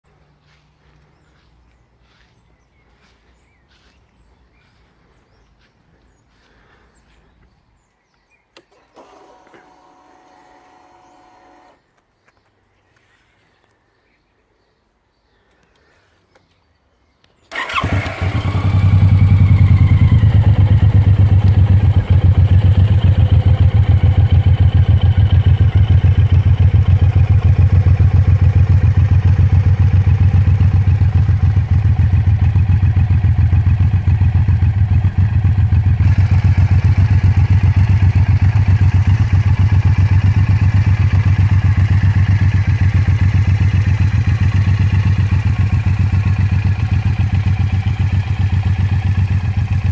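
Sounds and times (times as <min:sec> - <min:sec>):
motorcycle engine starting and idling: 0:08.5 - 0:11.9, 0:17.5 - 0:49.9.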